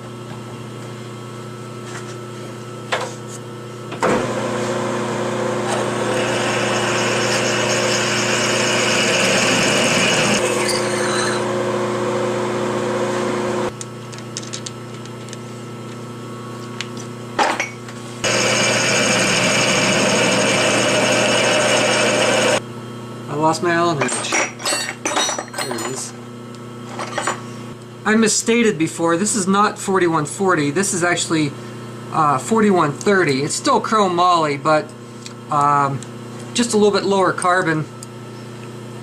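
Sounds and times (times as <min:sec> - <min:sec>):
lathe motor hum: 0:04.1 - 0:13.7, 0:18.2 - 0:22.6
hissing metal cut: 0:05.9 - 0:11.5, 0:18.2 - 0:22.6.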